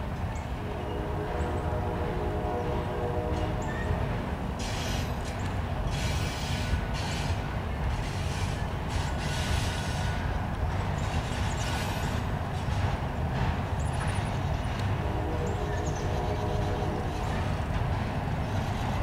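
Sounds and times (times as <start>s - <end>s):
steel wheels rumbling on rail: 0.0s - 19.0s
high hiss of passing cars: 3.8s - 13.2s.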